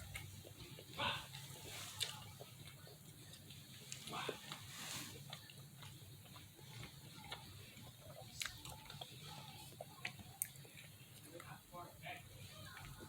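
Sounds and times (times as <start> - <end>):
chewing close to microphone: 0.0 - 13.0
faint low hum: 0.0 - 13.0
mouth clicks and smacks: 5.3 - 11.5.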